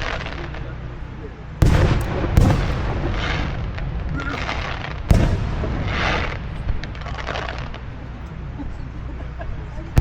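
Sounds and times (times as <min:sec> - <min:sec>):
fireworks booming: 0:01.6 - 0:08.1.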